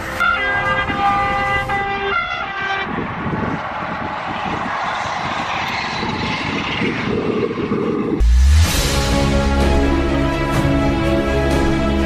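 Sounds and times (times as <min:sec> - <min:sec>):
train horn: 0:00.2 - 0:03.0.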